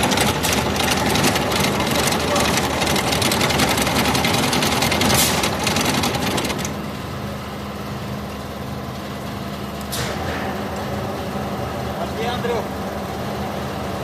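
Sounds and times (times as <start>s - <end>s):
diesel truck engine clattering: 0.0s - 7.0s.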